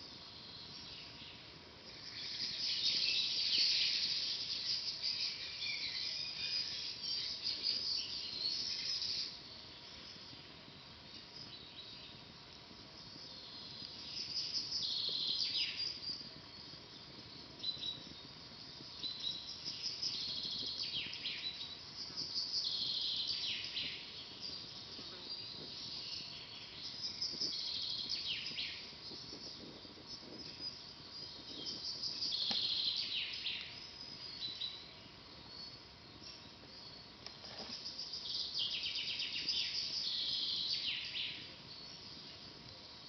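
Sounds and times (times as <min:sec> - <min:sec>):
campfire crackles: 0:00.0 - 0:43.0
songbirds trilling: 0:13.0 - 0:42.6.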